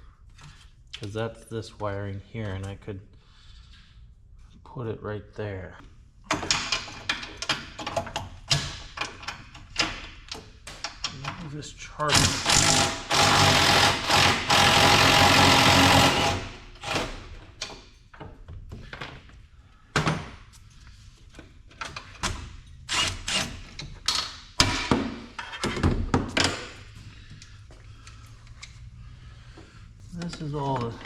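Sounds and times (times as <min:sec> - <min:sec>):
parts knocking and clunking: 0:06.2 - 0:20.5, 0:23.3 - 0:27.4
loud machine noise: 0:12.1 - 0:17.2.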